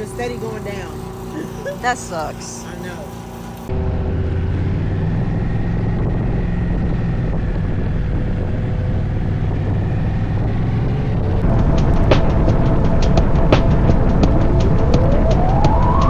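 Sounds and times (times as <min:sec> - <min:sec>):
motorcycle engine cruising: 0:00.0 - 0:16.0
wind noise: 0:03.7 - 0:16.0
higher tones: 0:11.4 - 0:16.0.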